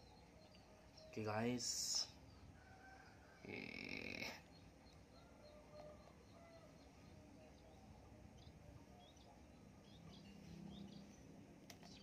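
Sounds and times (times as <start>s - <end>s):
faint small birds chirping: 0.0s - 12.0s.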